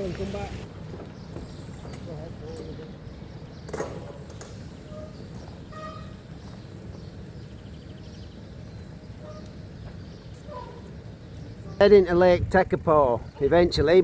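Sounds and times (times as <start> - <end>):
bicycle road rumble: 0.0 - 14.0
wind on microphone: 11.9 - 14.0.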